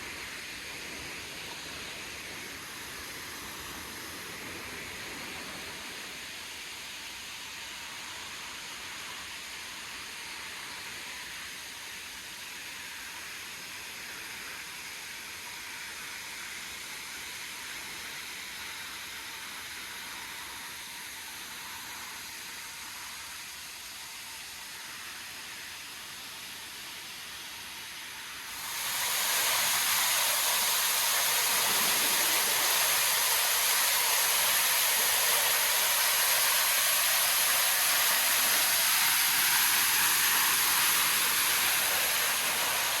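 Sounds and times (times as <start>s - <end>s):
waterfall rushing: 28.5s - 43.0s.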